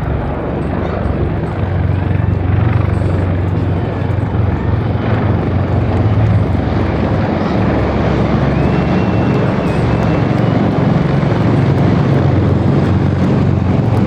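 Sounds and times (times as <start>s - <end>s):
aircraft engine rumble: 0.0s - 14.0s.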